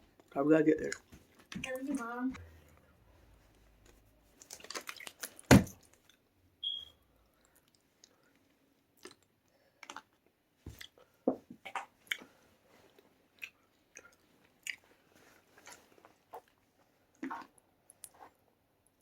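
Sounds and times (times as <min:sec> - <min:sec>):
person chewing food: 0:03.8 - 0:06.2, 0:07.3 - 0:18.4.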